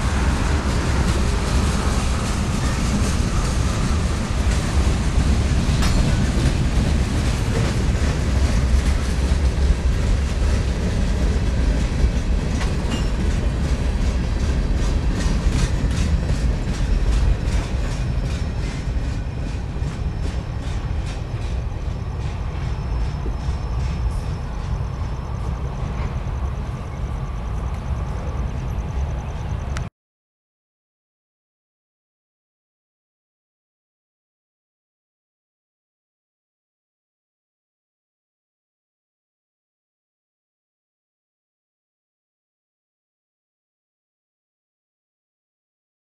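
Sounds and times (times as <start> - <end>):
wheels clacking over rail joints: 0.0 - 26.8
freight cars rumbling: 0.0 - 29.9.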